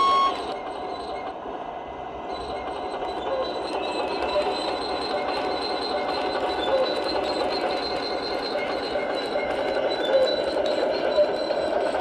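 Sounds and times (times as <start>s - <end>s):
mechanical rattling and clatter: 2.6s - 12.0s.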